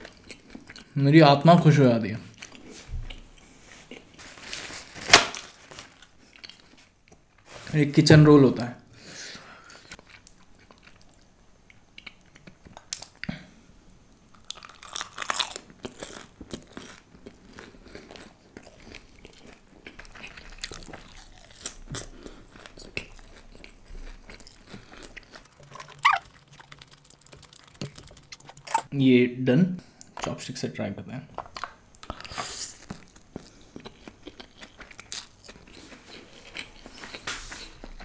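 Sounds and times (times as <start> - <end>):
chewing crisp fried food: 0.0 - 1.0, 2.3 - 4.2, 5.9 - 7.4, 9.6 - 13.3, 14.2 - 28.9, 31.6 - 38.0.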